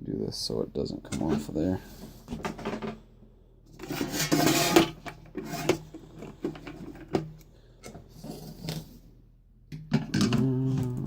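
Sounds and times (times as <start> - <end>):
scraping rub: 3.8 - 5.9.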